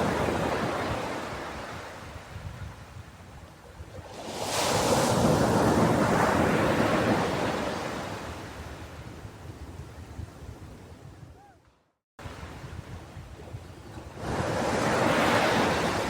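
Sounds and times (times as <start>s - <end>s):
ocean wave breaking on beach: 14.1s - 16.0s.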